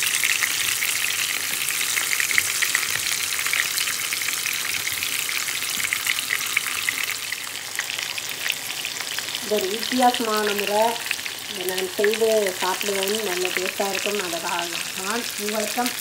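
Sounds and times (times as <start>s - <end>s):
food frying with crackling: 0.0s - 16.0s.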